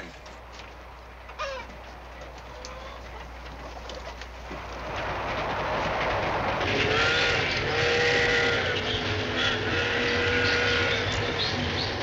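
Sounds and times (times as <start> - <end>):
train rumble and hiss: 0.0 - 12.0
train whistle blasts: 6.8 - 11.3.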